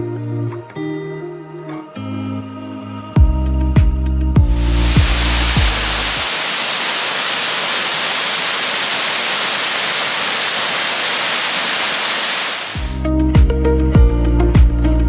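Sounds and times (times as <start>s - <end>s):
music: 0.0s - 6.1s, 12.8s - 15.0s
waterfall rushing: 4.5s - 13.0s.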